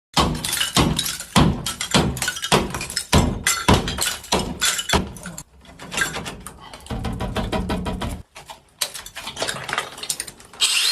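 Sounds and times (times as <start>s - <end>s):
heavy ringing thuds: 0.2s - 5.4s.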